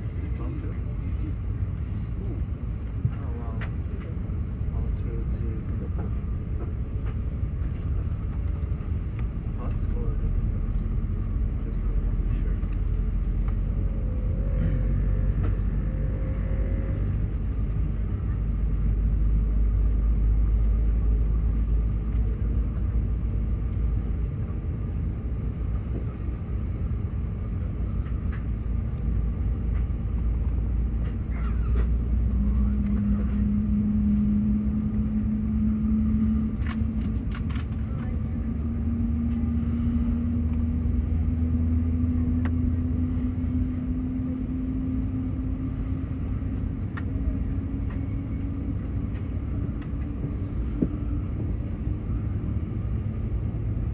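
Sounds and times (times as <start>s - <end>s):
jet engine low rumble: 0.0s - 53.9s
rising engine tone: 13.3s - 17.4s.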